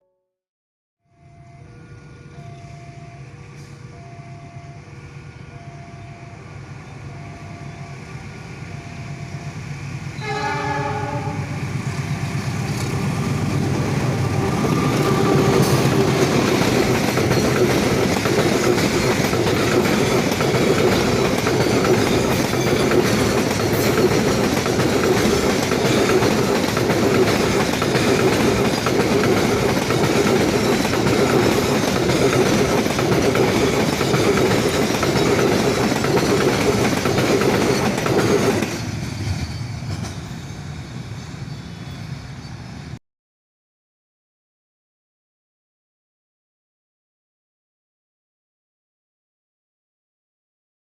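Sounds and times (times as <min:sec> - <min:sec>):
freight train rumble: 0:01.3 - 0:43.0
train horn blast: 0:10.2 - 0:11.7.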